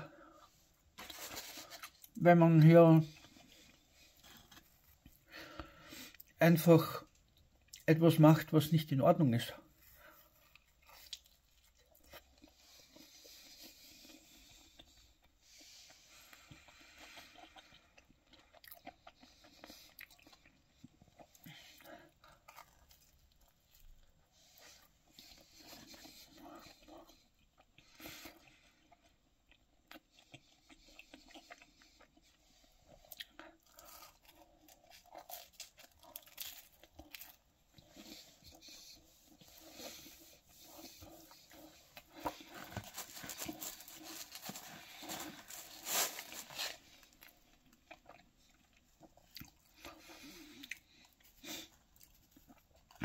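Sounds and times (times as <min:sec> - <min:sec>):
person chewing crunchy pizza crust: 0:00.0 - 0:07.9, 0:09.6 - 0:53.0.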